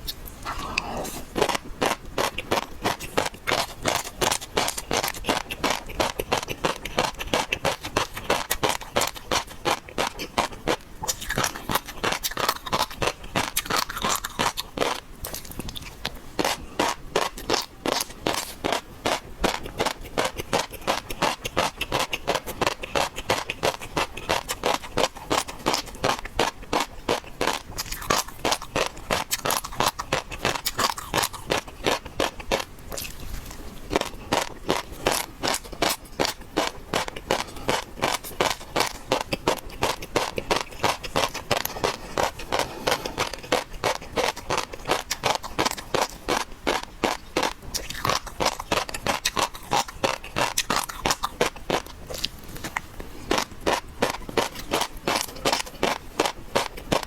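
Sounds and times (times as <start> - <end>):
wet chewing and crunching: 0.0 - 57.0.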